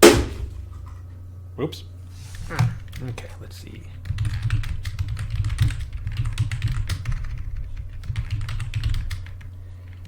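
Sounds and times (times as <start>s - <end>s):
steady low hum: 0.0s - 10.0s
fast typing on keyboard: 2.7s - 3.2s, 4.0s - 10.0s.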